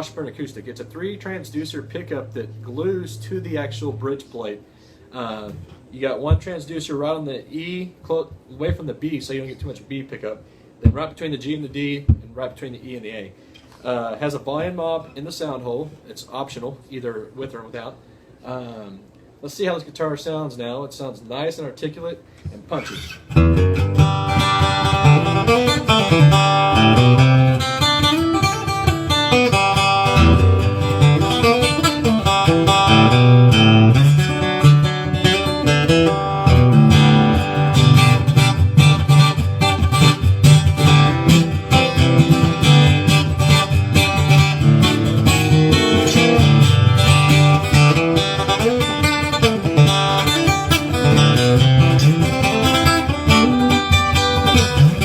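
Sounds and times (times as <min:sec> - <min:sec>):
acoustic guitar picking and strumming: 0:00.0 - 0:04.2, 0:22.7 - 0:55.0.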